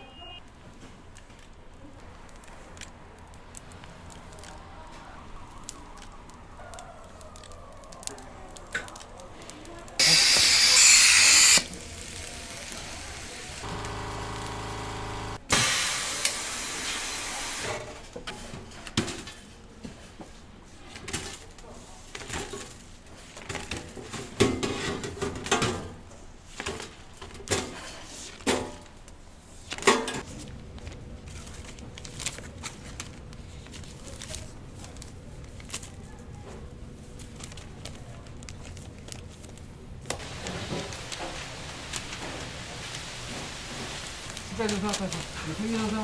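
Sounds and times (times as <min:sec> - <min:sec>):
hiss: 0:10.0 - 0:13.8, 0:15.5 - 0:17.8.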